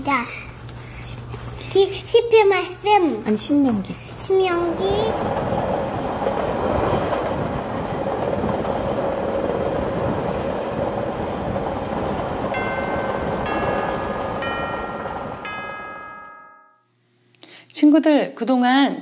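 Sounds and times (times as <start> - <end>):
train rumbling on rails: 3.6 - 16.5
high chime: 12.6 - 16.9.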